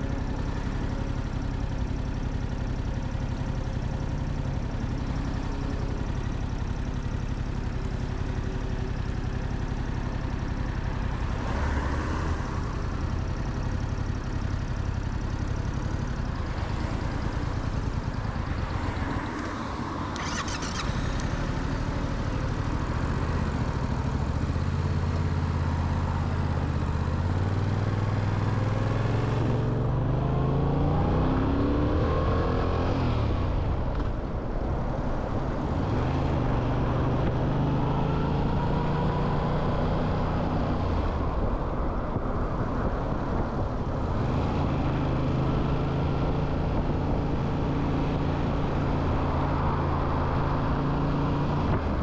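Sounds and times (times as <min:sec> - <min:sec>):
motorcycle engine accelerating: 0:00.0 - 0:34.2
road and wind noise: 0:00.0 - 0:52.0.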